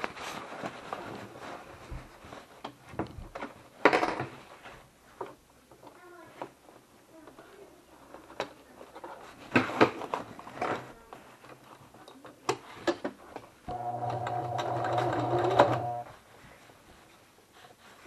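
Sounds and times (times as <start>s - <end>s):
sewing machine running: 13.7s - 16.1s.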